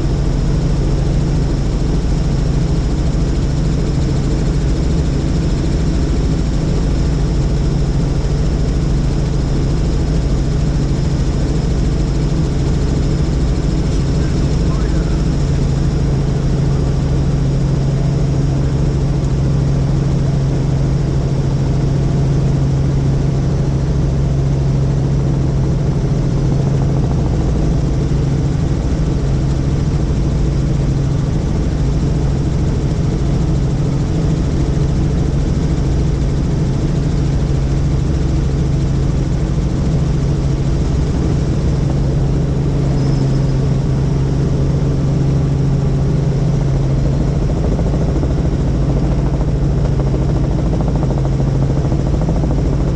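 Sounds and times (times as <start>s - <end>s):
helicopter rotor drone: 0.0s - 52.9s.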